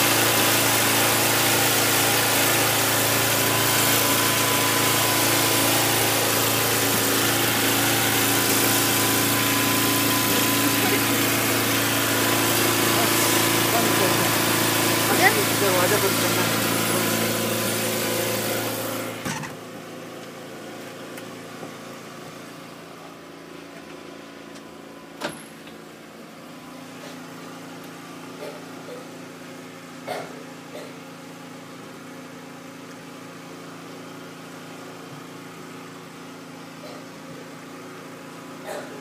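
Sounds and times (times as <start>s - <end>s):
machine hum: 0.0s - 20.2s
outdoor engine-like drone: 0.0s - 20.9s.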